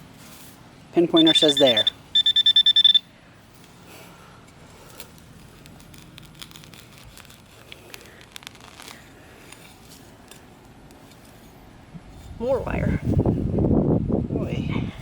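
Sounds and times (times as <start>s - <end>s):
scraping and tearing of dirt: 4.7s - 11.4s.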